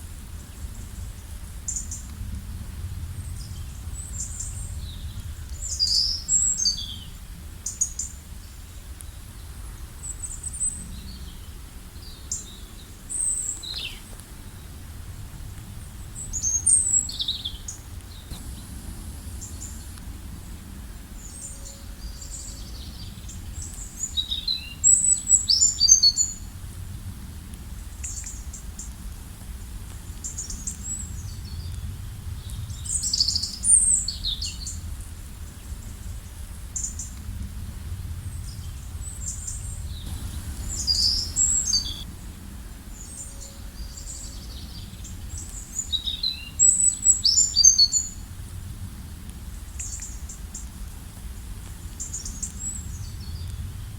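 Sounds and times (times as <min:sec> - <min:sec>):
low background rumble: 0:14.0 - 0:24.2, 0:28.7 - 0:45.8
small birds chirping: 0:16.2 - 0:26.4, 0:39.0 - 0:42.1.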